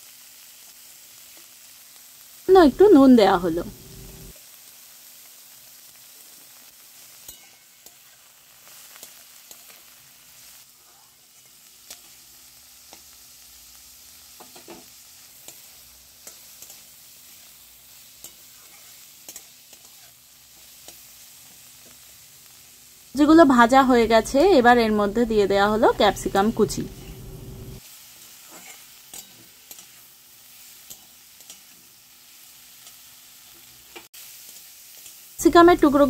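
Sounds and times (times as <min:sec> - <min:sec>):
vegetables sizzling in oil: 0:00.0 - 0:36.0
metal spatula scraping pan: 0:28.4 - 0:30.0.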